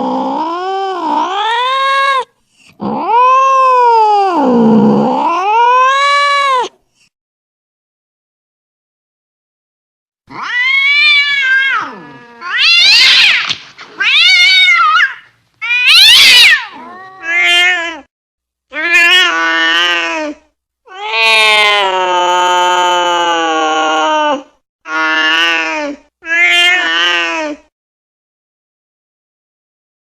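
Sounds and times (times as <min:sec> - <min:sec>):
cat yowling angrily: 0:00.0 - 0:06.7, 0:10.3 - 0:18.1, 0:18.8 - 0:27.6.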